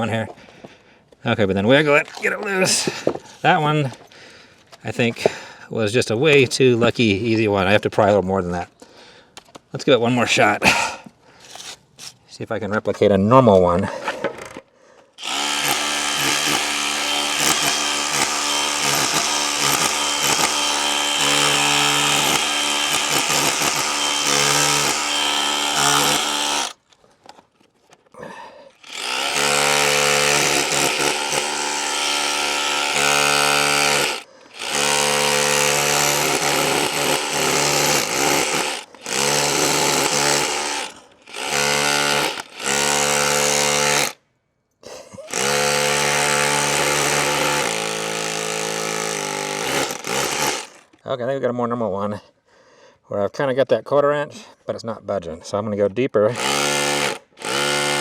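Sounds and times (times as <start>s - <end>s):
rotary hammer chiselling into wall: 15.2s - 26.8s, 29.0s - 44.2s, 45.3s - 50.8s, 56.4s - 58.0s.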